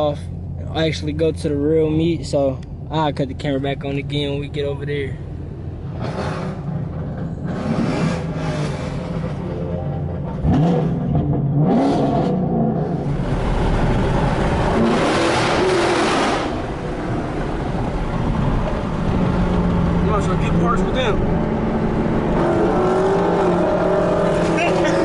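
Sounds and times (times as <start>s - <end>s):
car engine revving: 0.0s - 25.0s
exhaust and road noise: 0.0s - 25.0s.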